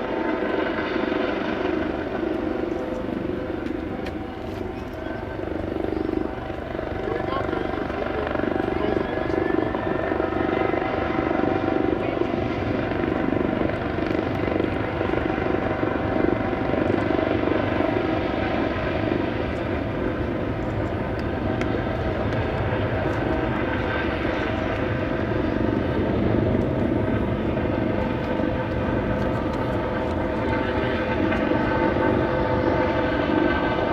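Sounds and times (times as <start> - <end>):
jet engines running: 0.0 - 33.9.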